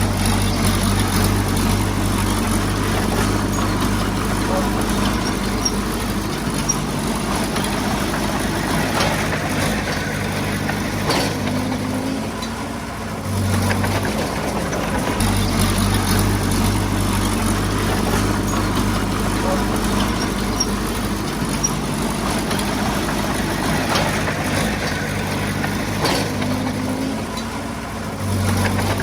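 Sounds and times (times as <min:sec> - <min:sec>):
heavy diesel engine running: 0:00.0 - 0:29.0.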